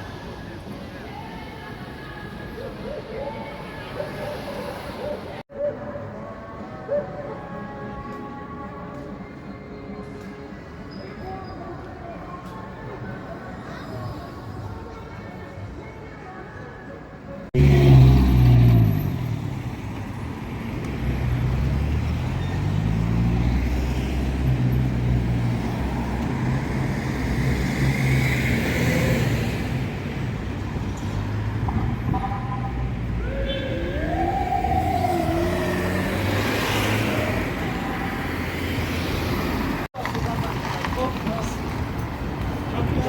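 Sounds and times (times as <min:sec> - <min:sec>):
vehicles passing close by: 0:17.5 - 0:43.0.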